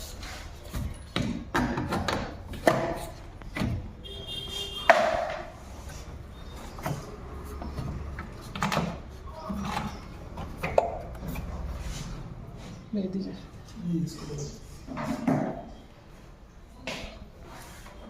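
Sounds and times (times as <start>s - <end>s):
tools knocking and clattering: 0.7s - 3.9s.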